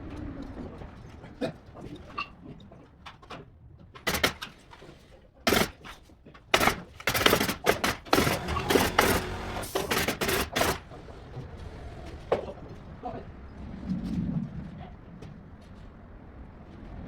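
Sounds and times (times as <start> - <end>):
sharp knocks: 4.0 - 4.6, 5.5 - 5.9, 6.6 - 10.9
clattering and banging: 4.0 - 4.9, 5.5 - 11.2.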